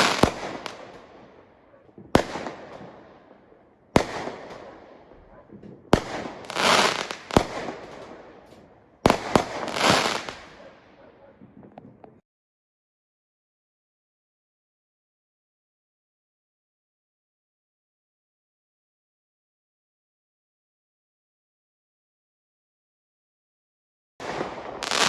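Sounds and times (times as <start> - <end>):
fireworks crackling hiss: 0.0 - 1.0, 6.0 - 8.1, 9.1 - 10.6, 24.4 - 25.0
fireworks bangs: 0.0 - 12.2, 24.2 - 25.0.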